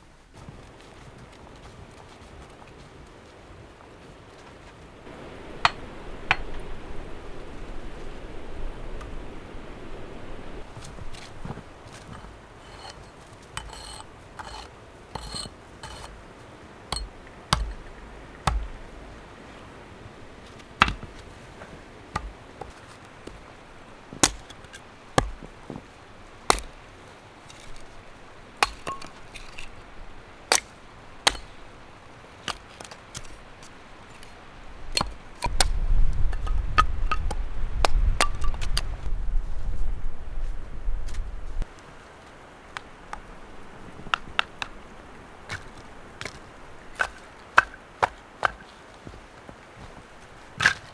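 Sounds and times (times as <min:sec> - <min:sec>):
wind rumble on microphone: 0:05.0 - 0:12.6, 0:34.5 - 0:41.7
tool knocking on wood: 0:16.9 - 0:17.9, 0:18.5 - 0:18.8, 0:20.8 - 0:21.2.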